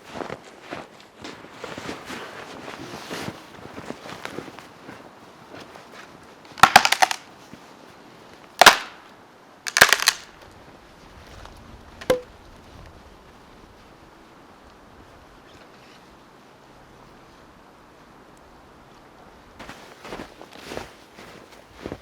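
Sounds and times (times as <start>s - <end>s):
dry sticks snapping: 6.6s - 7.2s, 8.6s - 9.0s, 9.7s - 10.3s.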